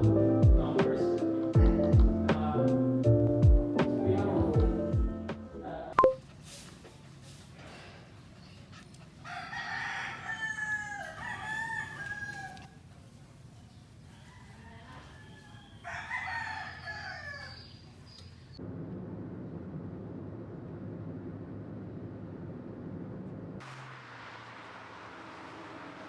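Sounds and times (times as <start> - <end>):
rooster crowing: 9.2 - 12.8, 14.1 - 17.8.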